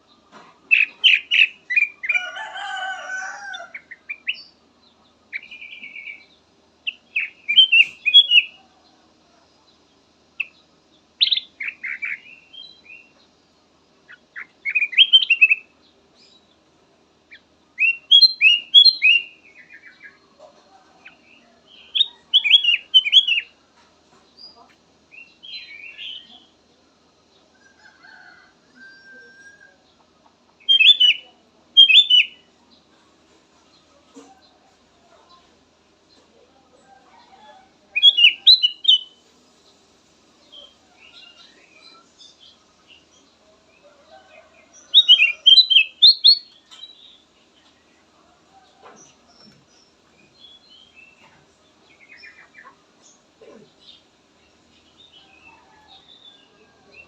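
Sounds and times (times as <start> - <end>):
longer lower bird call: 17.3 - 20.3, 30.6 - 32.5, 37.2 - 39.2, 43.8 - 47.1.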